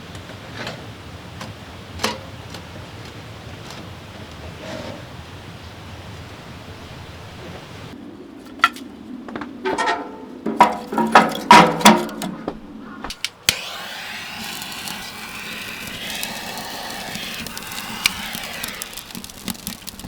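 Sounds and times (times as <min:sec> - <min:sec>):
steady hiss: 0:13.4 - 0:20.0
hard objects clicking and knocking: 0:14.4 - 0:20.0.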